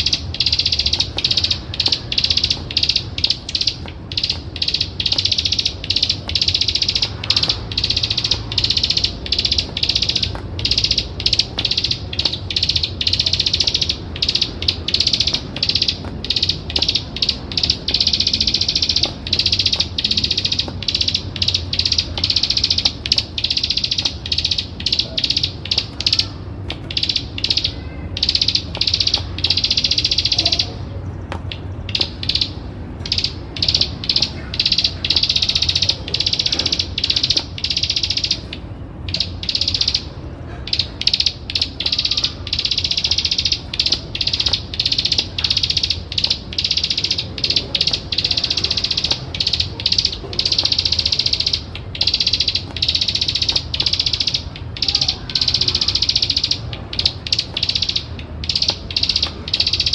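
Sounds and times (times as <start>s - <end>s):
bird singing buzzing trill: 0.0s - 40.1s.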